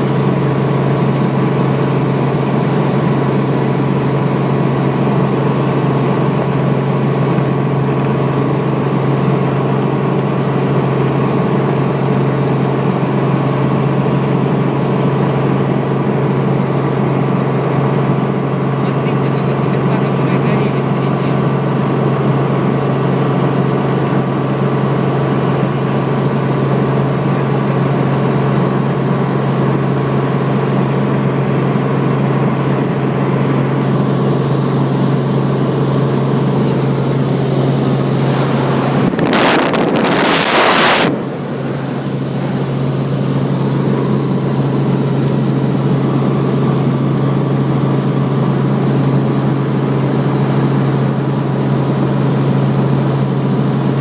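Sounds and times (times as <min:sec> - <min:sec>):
helicopter engine and rotor drone: 0:00.0 - 0:54.0
burst of noise: 0:38.0 - 0:43.1.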